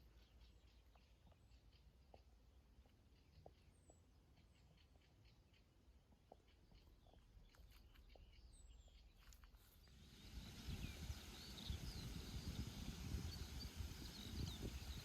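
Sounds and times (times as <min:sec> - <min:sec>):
bird chirps: 0:00.0 - 0:15.0
steady hiss and low rumble: 0:09.6 - 0:15.0
rain drips: 0:09.9 - 0:15.0.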